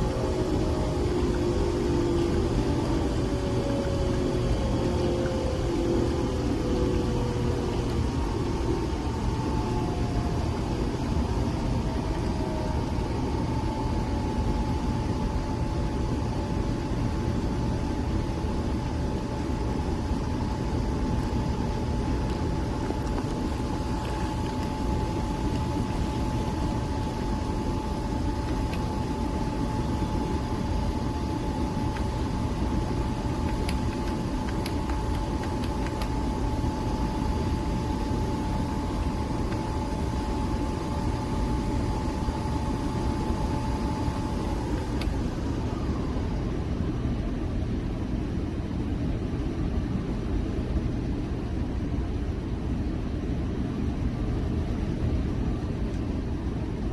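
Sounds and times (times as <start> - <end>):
small appliance motor whining: 0.0 - 16.9.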